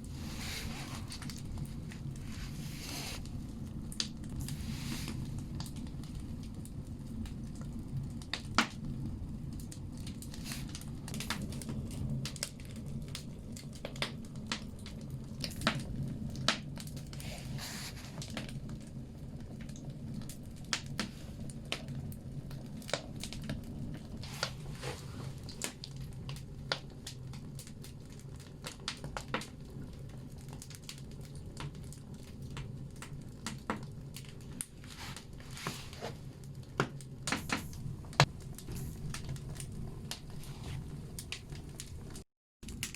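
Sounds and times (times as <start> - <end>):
firewood crackling and popping: 0.0 - 42.9
low rumble of fire: 0.0 - 42.9.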